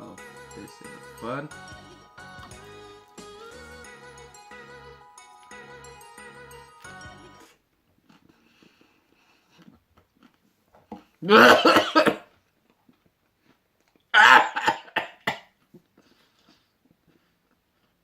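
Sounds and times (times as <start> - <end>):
man gagging and retching: 11.0 - 12.2, 14.2 - 15.4
man coughing: 11.2 - 12.2, 14.2 - 15.4.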